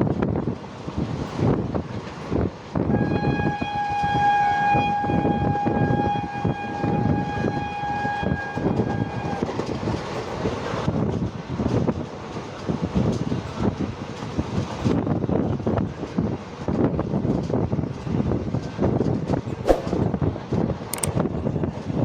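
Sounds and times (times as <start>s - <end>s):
train rumbling and clattering: 0.0s - 22.0s
train horn blast: 2.8s - 9.6s.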